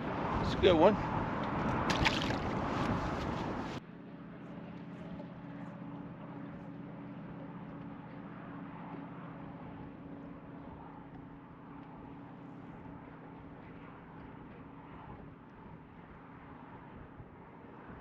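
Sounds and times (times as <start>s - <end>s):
water noise: 0.0s - 3.8s
boat motor humming: 0.0s - 14.5s
wind: 0.0s - 18.0s.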